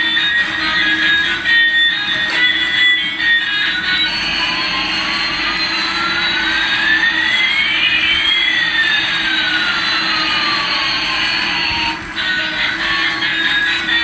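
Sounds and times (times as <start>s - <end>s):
whistling tones rising and falling: 0.0s - 12.2s.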